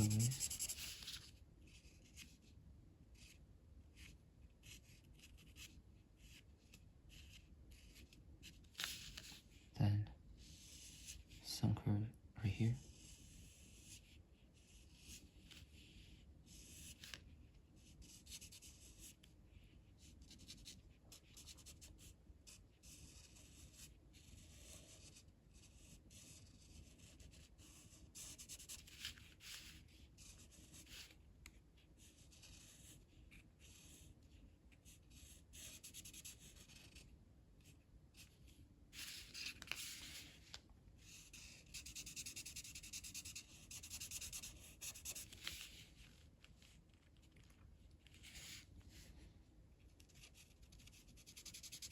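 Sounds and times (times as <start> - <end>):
drawing tool scratching on paper: 0.0 - 1.2, 41.1 - 45.8, 50.1 - 51.9.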